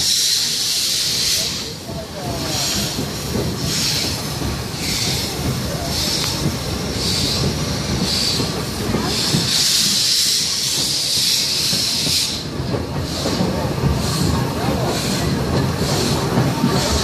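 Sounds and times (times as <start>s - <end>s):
steam hissing: 0.0s - 17.0s
train rumbling: 0.0s - 17.0s.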